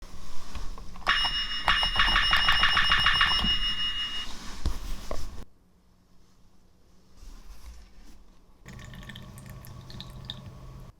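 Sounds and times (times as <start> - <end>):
pulsing electronic ringing tone: 1.1 - 4.3.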